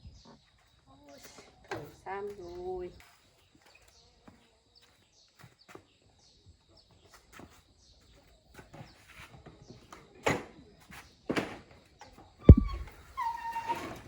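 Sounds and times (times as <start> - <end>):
faint bird chirps: 12.0 - 13.8
sharp knocks: 12.5 - 13.1.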